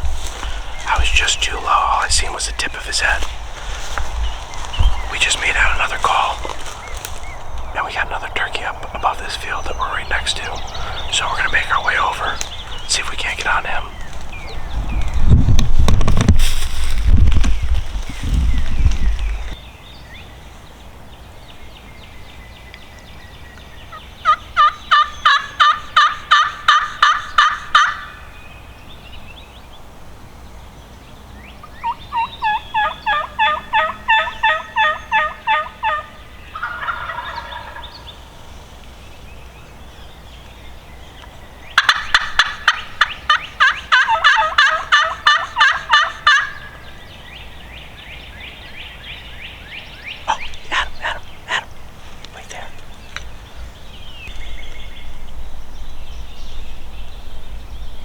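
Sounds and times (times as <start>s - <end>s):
wild turkey calling: 0.0s - 15.2s, 23.8s - 28.4s, 31.5s - 54.8s.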